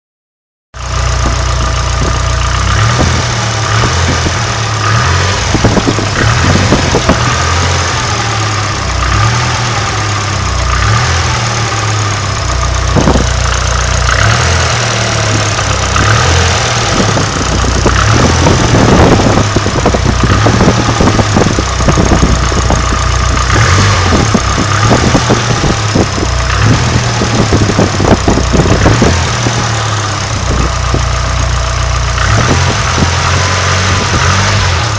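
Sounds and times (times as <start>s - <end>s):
car engine running: 0.8s - 34.9s
ticking engine clatter: 0.8s - 34.9s.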